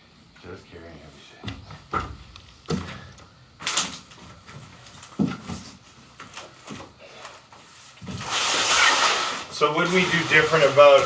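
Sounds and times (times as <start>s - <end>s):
heavy materials scraping: 8.1s - 11.0s.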